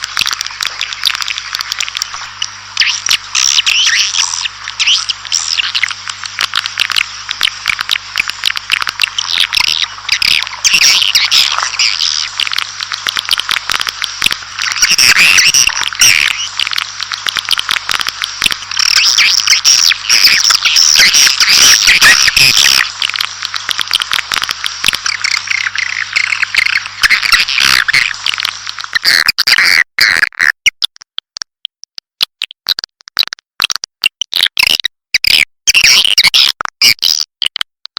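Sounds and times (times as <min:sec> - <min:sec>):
swiftlets twittering and chirping: 0:00.2 - 0:29.8.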